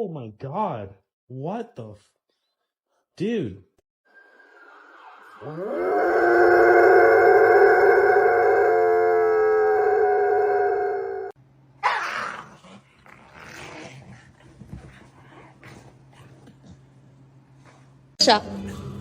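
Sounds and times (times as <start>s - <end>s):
dog howling: 5.3s - 12.4s.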